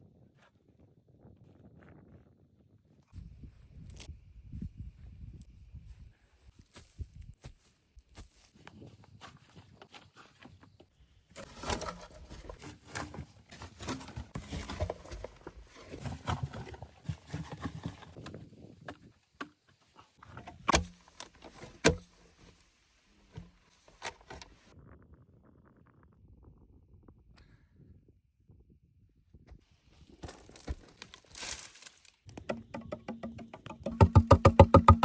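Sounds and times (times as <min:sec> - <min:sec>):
crunching and scraping: 0:08.6 - 0:24.8, 0:29.9 - 0:32.8.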